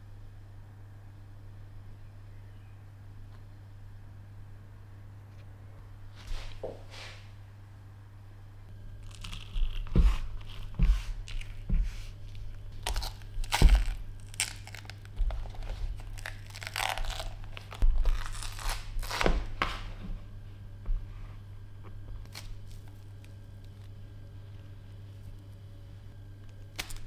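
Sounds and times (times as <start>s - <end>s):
crinkling and crunching by hand: 8.7s - 19.9s, 21.8s - 24.0s, 26.4s - 27.0s.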